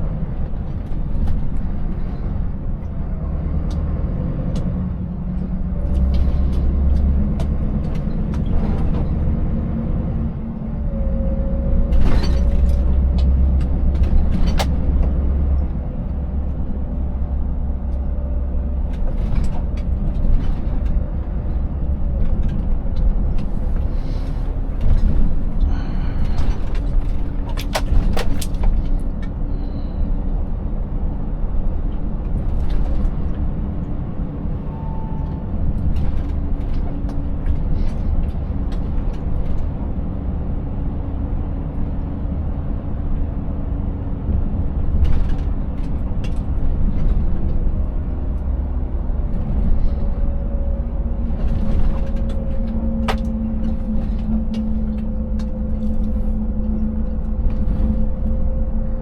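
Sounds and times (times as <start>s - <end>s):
road and tyre noise: 0.0s - 59.0s
truck engine droning: 0.0s - 59.0s
truck rig knocks and rattles: 12.0s - 15.8s, 26.2s - 29.4s, 51.2s - 56.1s.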